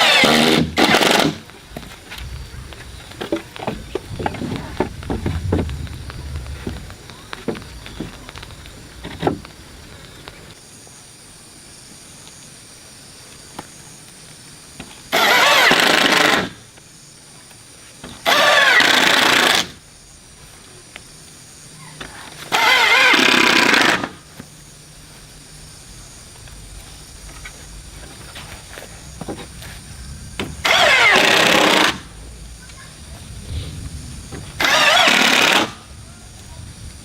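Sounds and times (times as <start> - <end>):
motorized tool running: 0.0 - 1.6, 15.1 - 16.6, 18.1 - 19.8, 22.2 - 24.3, 30.4 - 32.1, 34.6 - 35.9.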